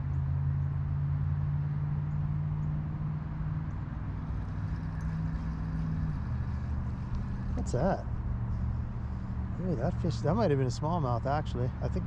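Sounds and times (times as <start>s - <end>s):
low engine hum: 0.0s - 12.0s
creek water flowing: 4.1s - 9.2s.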